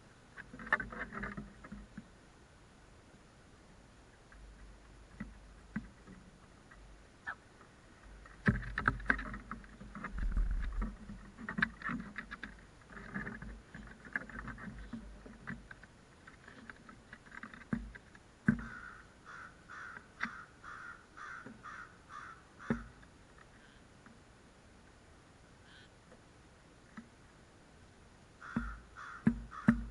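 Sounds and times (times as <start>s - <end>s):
wind on microphone: 10.0s - 11.3s
crows cawing: 18.6s - 23.0s, 28.4s - 29.9s
sharp knocks: 28.5s - 29.9s.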